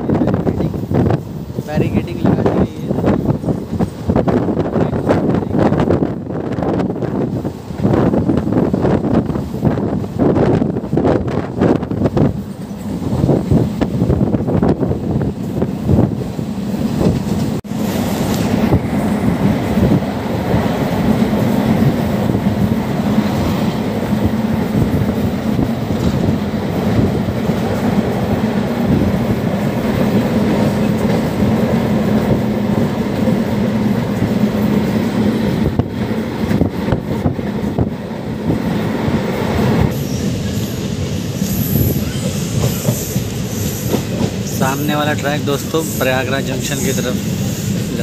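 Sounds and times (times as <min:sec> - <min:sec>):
train wheels rumbling on rail: 0:00.0 - 0:48.0
high-pitched squeal: 0:39.9 - 0:44.2.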